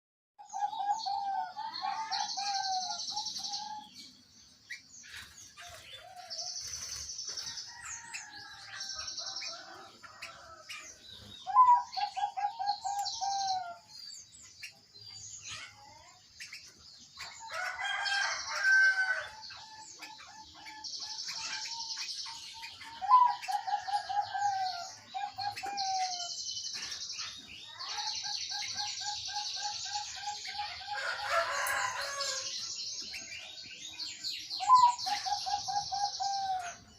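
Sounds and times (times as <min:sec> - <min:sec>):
dove cooing: 0:00.4 - 0:03.8, 0:11.4 - 0:13.8, 0:22.9 - 0:26.3, 0:34.6 - 0:36.9.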